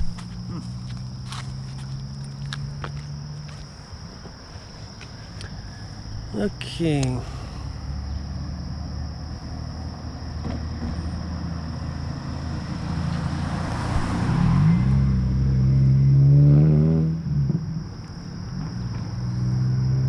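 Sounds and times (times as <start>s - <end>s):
car tyre noise: 0.0s - 5.8s, 10.4s - 15.7s
car engine accelerating: 7.8s - 20.0s.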